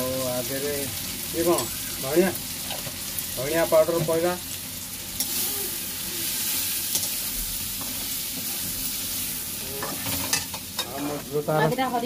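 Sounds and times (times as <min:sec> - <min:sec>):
onions sizzling in hot oil: 0:00.0 - 0:12.0
spatula scraping and tapping pan: 0:09.8 - 0:11.9.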